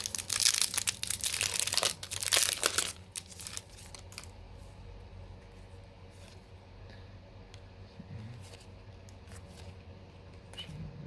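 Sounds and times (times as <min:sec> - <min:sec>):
foil wrapper tearing and crinkling: 0:00.0 - 0:04.3
faint handling sounds: 0:00.3 - 0:06.8.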